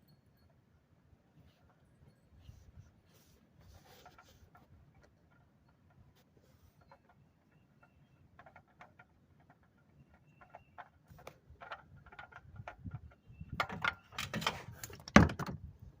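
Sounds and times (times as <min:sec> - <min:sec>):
tools clicking and tapping: 0:06.8 - 0:15.2
clatter of loud knocks: 0:13.6 - 0:15.6.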